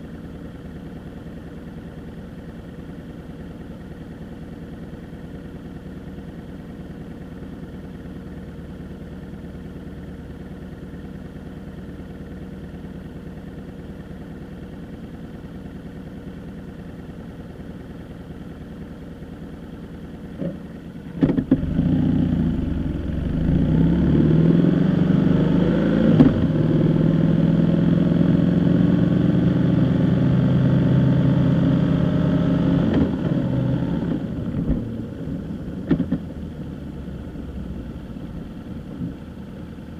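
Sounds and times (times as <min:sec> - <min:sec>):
vehicle engine idling: 0:00.0 - 0:24.5, 0:33.0 - 0:39.9
vehicle pulling away: 0:21.5 - 0:35.5.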